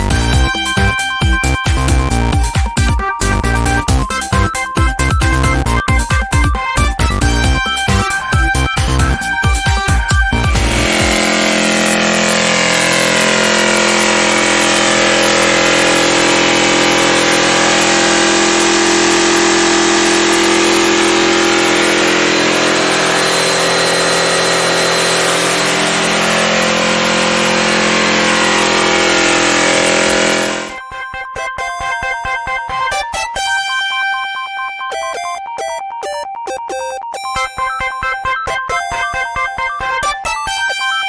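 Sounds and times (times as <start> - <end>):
engine running steadily: 6.8 - 30.8.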